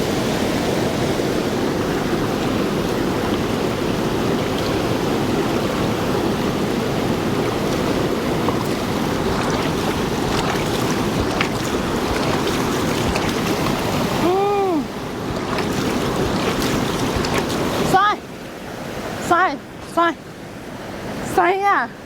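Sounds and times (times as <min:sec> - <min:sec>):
rushing water: 0:00.0 - 0:21.7.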